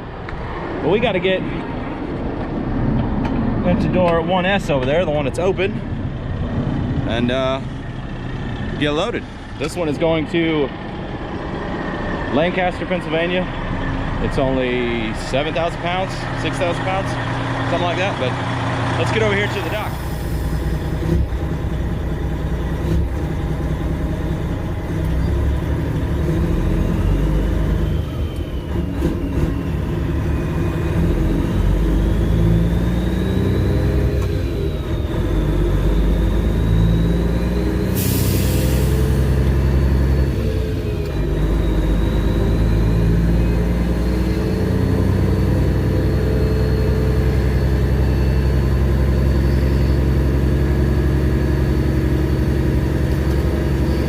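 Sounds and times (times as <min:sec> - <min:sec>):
diesel truck engine running: 0:00.0 - 0:54.0
air release hiss: 0:37.9 - 0:39.1.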